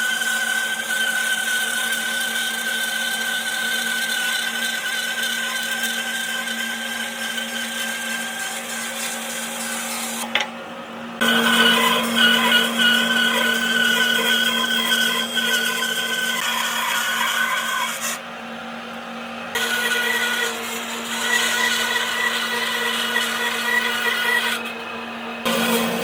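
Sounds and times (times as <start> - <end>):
power tool motor running: 11.2 - 18.2, 19.5 - 24.8, 25.4 - 26.0.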